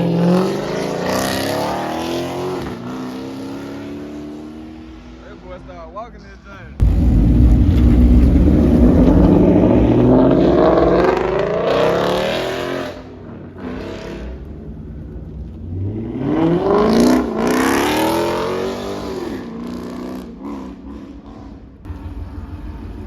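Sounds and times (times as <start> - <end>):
car engine revving: 6.5 - 23.0.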